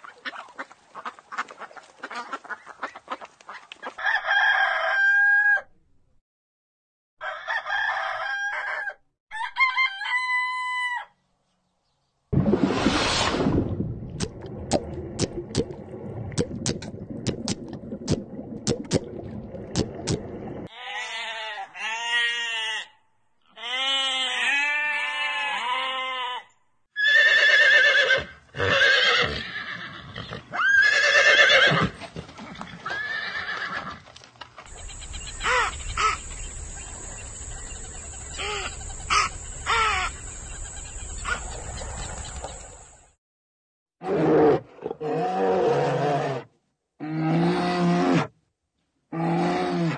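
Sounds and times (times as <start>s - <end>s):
horse whinnying: 27.0s - 32.0s, 32.8s - 34.0s
animal calls: 34.7s - 42.5s.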